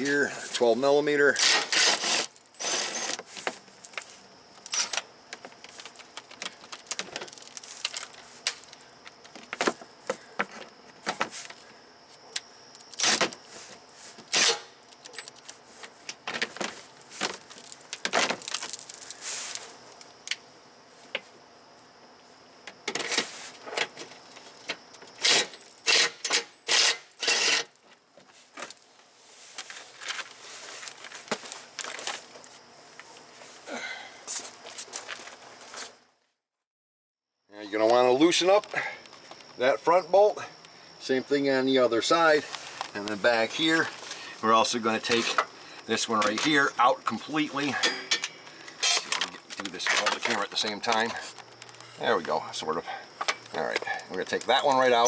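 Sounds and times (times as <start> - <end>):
ratchet and tools clanking: 47.7 - 50.3.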